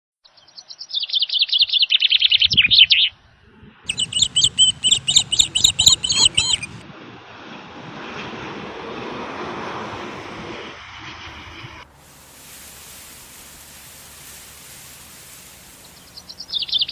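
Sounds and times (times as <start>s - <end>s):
songbird singing: 0.2s - 3.2s, 3.9s - 6.8s, 14.5s - 16.9s
steady rushing hiss: 3.9s - 6.8s, 11.8s - 16.9s.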